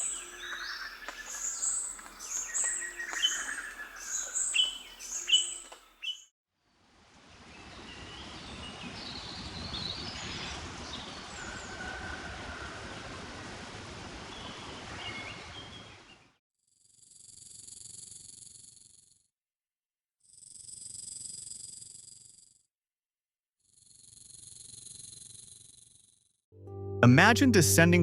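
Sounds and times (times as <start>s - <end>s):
forest ambience hiss: 0.0s - 6.2s
faint bird calls: 0.0s - 6.3s.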